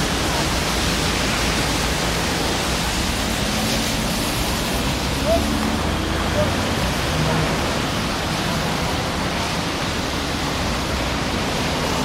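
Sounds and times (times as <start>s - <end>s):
drizzling rain: 0.0s - 12.0s.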